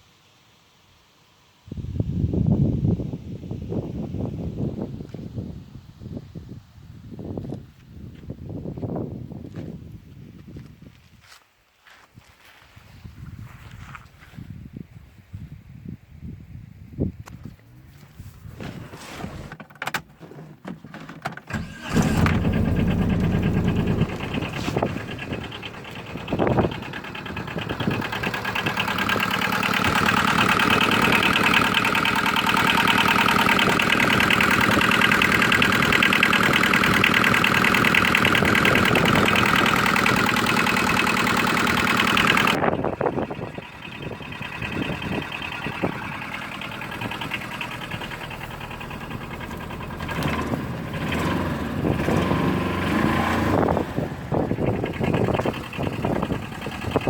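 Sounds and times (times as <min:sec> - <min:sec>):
diesel engine starting and running: 0:21.4 - 0:57.0.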